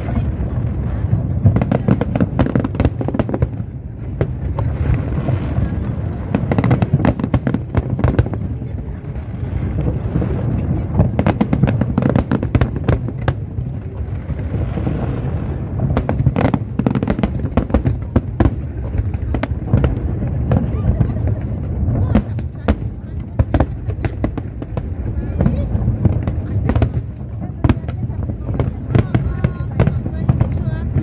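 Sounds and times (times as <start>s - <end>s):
fireworks bangs and crackles: 0.0s - 31.0s
steady low rumble: 0.0s - 31.0s.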